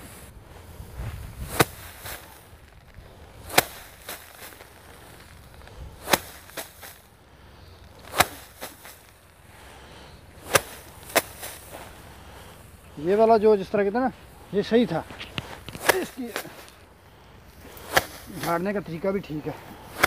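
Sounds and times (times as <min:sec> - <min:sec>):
rice bundles beaten by hand: 0:00.0 - 0:20.0.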